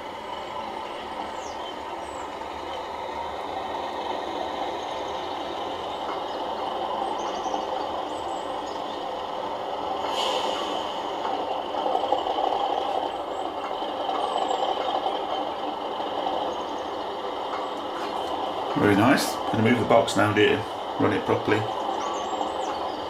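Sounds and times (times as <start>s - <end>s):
diesel locomotive engine through small speaker: 0.0s - 23.0s
short hiss: 10.0s - 11.5s.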